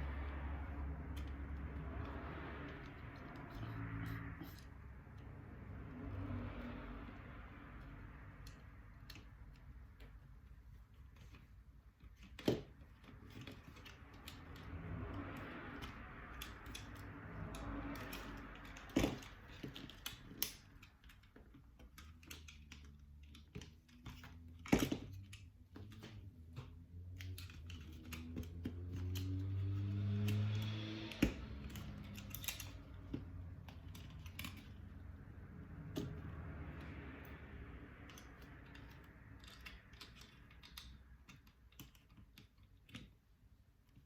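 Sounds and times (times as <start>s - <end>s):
plastic parts clicking and tapping: 7.8s - 37.0s, 38.0s - 44.0s.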